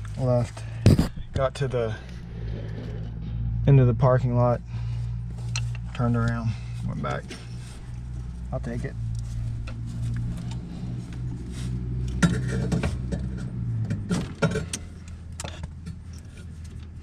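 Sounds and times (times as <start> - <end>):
vehicle engine idling: 0.0 - 17.0
sharp clicks and knocks: 12.0 - 17.0.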